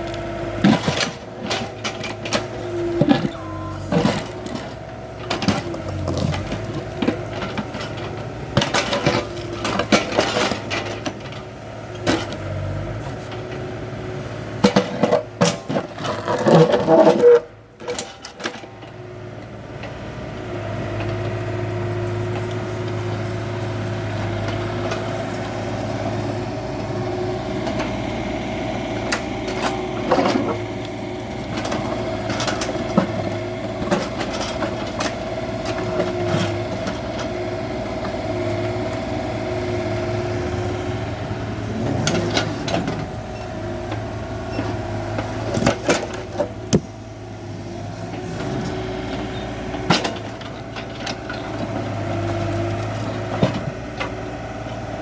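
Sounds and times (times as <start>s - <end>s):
excavator diesel engine running: 0.0s - 55.0s
machine clanks and knocks: 0.6s - 11.4s, 42.0s - 47.0s.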